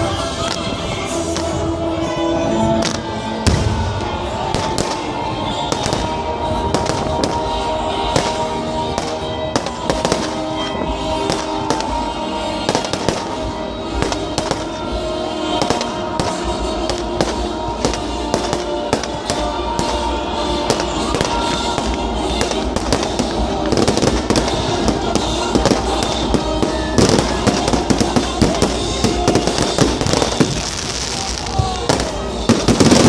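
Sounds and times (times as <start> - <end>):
music playing: 0.0 - 33.0
firecrackers banging: 2.8 - 33.0.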